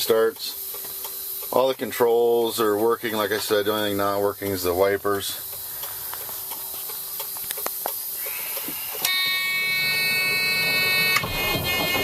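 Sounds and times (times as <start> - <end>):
diesel engine cranking and rumbling: 0.0 - 12.0
electric warning buzzer: 8.1 - 12.0.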